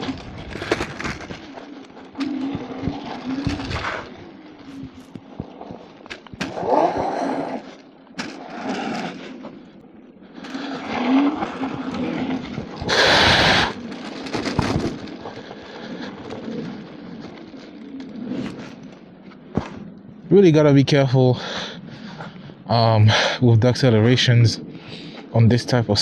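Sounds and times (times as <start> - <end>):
tires churning on snow: 0.0 - 9.6, 10.4 - 21.8
electric scooter accelerating: 0.0 - 20.3.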